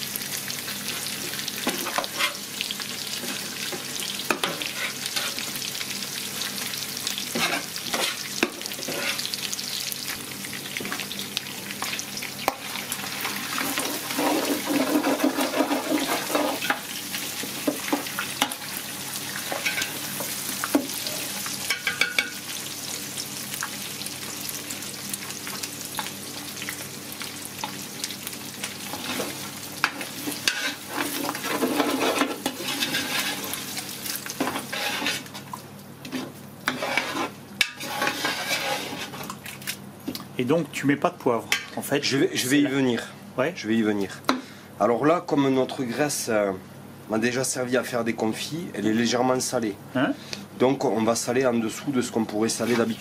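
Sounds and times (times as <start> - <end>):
fat sizzling in pot: 0.0 - 39.8, 51.2 - 53.0
metal spoon scraping pot: 36.7 - 39.2.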